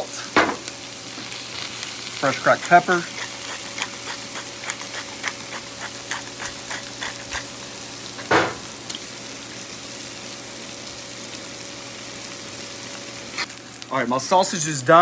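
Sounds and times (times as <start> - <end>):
food sizzling on a griddle: 0.0 - 15.0
pepper grinder clicking: 2.2 - 7.5.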